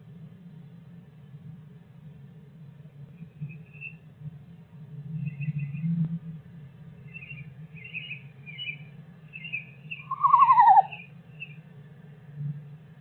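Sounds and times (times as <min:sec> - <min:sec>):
soft chirps: 0:07.1 - 0:11.6.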